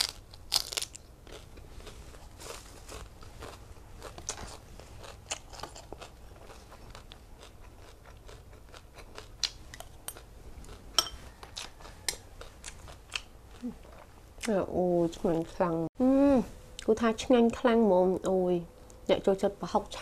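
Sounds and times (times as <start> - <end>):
person chewing food: 0.0 - 14.5
spoon clinking on glass: 11.0 - 11.2.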